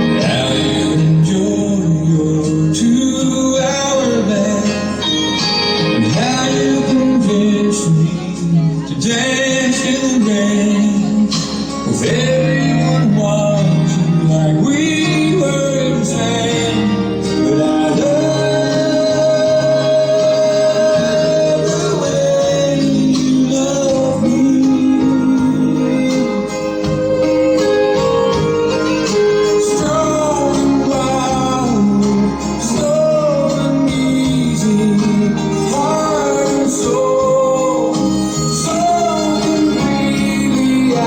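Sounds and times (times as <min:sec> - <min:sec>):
instrumental waltz accompaniment: 0:00.0 - 0:41.0
man singing a waltz: 0:00.0 - 0:41.0.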